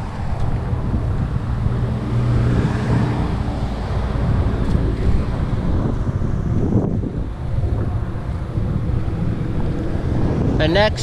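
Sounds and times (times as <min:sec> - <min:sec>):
road traffic: 0:00.0 - 0:11.0
wind buffeting microphone: 0:00.0 - 0:11.0.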